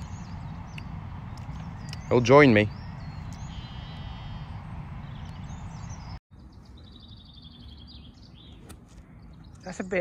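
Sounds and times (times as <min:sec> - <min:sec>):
low outdoor background noise: 0:00.0 - 0:10.0
songbird chirping rapidly: 0:00.0 - 0:10.0.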